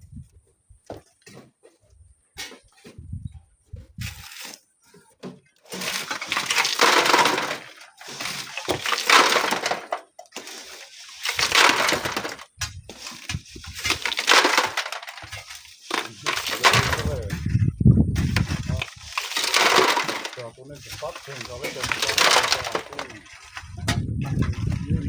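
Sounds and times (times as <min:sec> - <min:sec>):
shovel scraping sand and gravel: 0:04.0 - 0:04.7, 0:05.7 - 0:17.5, 0:18.2 - 0:24.0.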